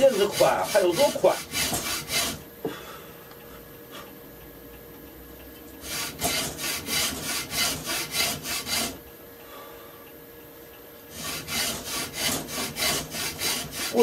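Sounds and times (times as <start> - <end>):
hand saw cutting wood: 0.0 - 2.4, 5.8 - 9.0, 11.1 - 14.0.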